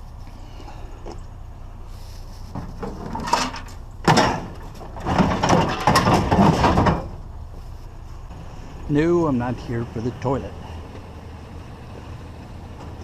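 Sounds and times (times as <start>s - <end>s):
low steady hum: 0.0s - 13.0s
hard objects clattering and scraping: 2.3s - 7.2s.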